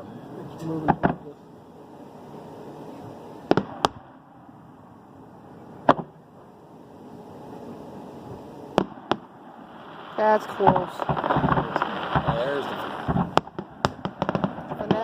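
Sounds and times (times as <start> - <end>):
background hiss: 0.0 - 15.0
fireworks bursting with bangs: 0.8 - 1.4, 3.1 - 4.2, 5.8 - 6.2, 8.2 - 15.0.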